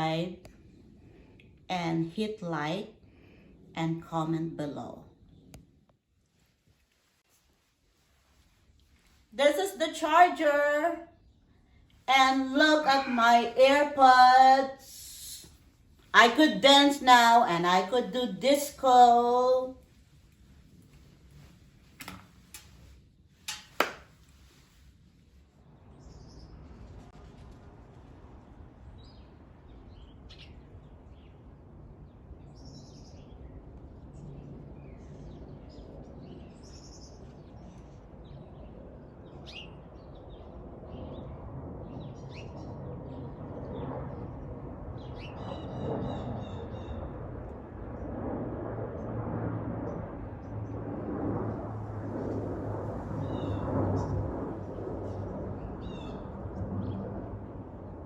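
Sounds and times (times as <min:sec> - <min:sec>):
low steady rumble: 0:37.9 - 0:58.0.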